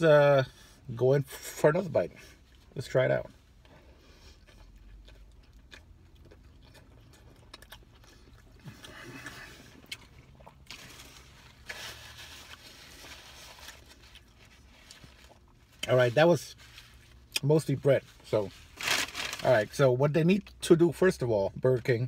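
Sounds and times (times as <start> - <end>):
person chewing soft food: 3.4 - 16.0.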